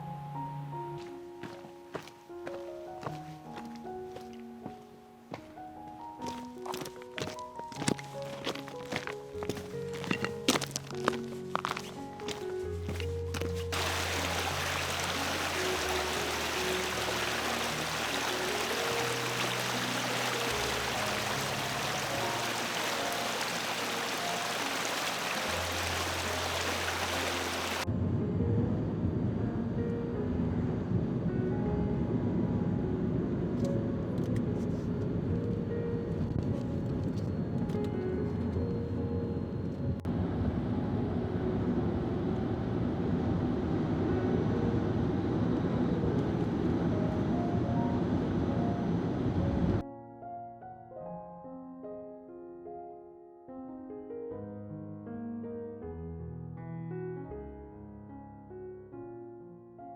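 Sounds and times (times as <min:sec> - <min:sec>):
soft background music: 0:00.0 - 0:54.6
stream flowing water: 0:13.3 - 0:27.8
low rumble: 0:27.9 - 0:49.8.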